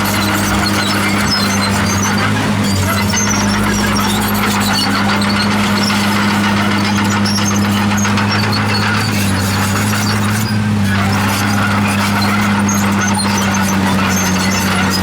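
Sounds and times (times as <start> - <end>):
diesel engine running: 0.0 - 15.0
steel tracks squeaking and clattering: 0.0 - 15.0.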